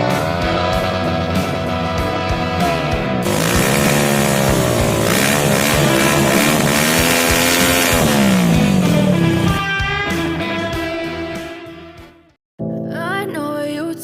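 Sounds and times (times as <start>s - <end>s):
motorcycle engine revving: 0.0s - 10.4s
music playing: 0.0s - 14.0s.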